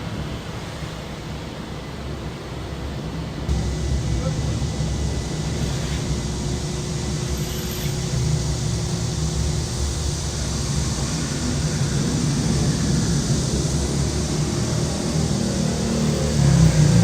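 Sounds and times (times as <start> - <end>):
steady hiss: 0.0 - 17.0
vehicle engine rumbling: 3.5 - 17.0.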